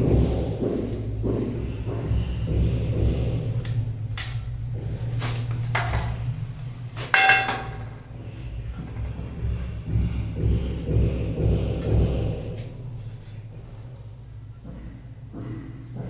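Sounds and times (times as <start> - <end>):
low hum: 0.0 - 16.0
hard objects knocking and clinking: 7.1 - 8.0.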